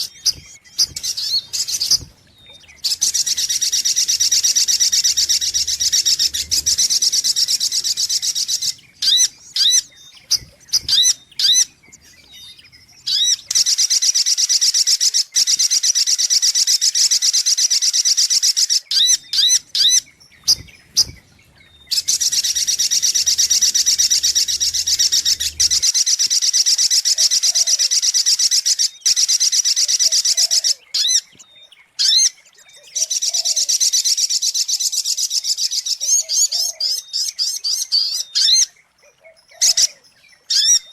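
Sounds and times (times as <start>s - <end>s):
bird high-pitched trills: 0.0s - 14.2s, 18.9s - 26.4s
bird chirps: 0.0s - 40.9s.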